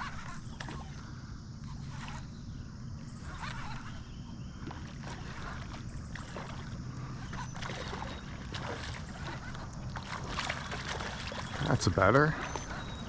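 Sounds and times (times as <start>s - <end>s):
creek water splashing: 0.0s - 13.0s
running water rushing: 5.1s - 13.0s.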